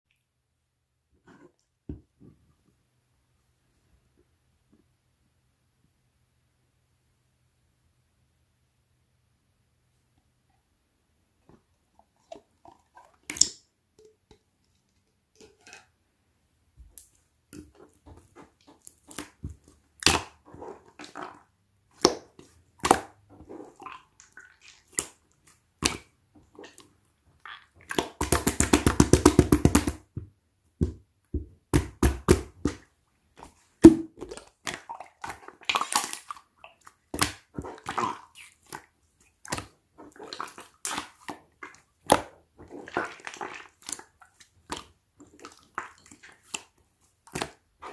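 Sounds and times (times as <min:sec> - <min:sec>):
slime squished by hand: 0:33.4 - 0:47.9.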